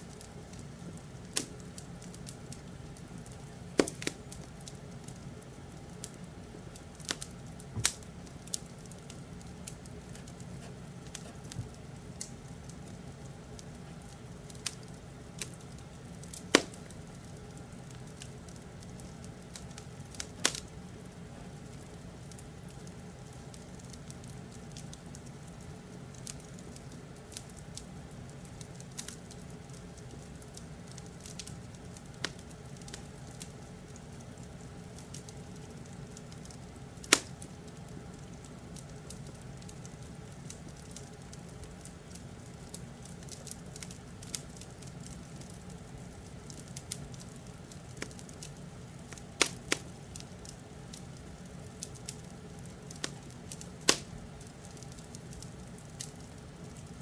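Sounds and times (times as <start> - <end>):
wood fire crackling: 0.0 - 57.0
fire popping: 7.0 - 12.4, 28.4 - 57.0.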